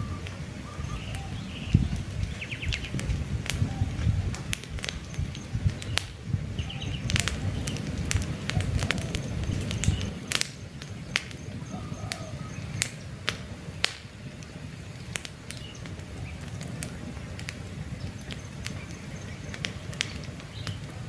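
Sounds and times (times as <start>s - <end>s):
faint bird chirps: 0.0s - 3.0s, 11.4s - 12.8s
campfire crackling and popping: 0.0s - 21.0s
low rumble of burning flames: 0.0s - 21.0s.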